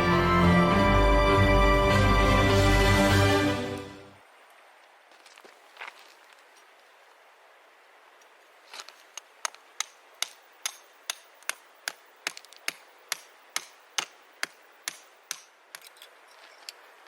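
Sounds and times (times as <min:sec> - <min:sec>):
sharp knocks of tool striking: 0:09.4 - 0:15.9.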